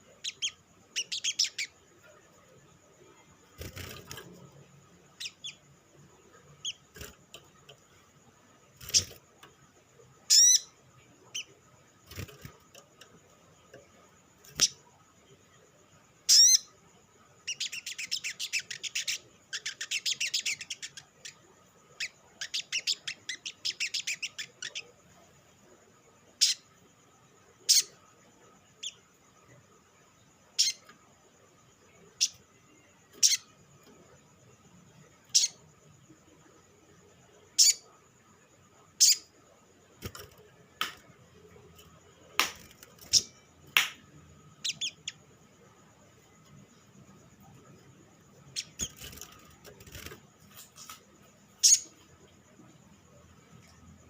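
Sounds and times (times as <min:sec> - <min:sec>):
bird high chattering trills: 0:00.2 - 0:01.8, 0:10.3 - 0:10.7.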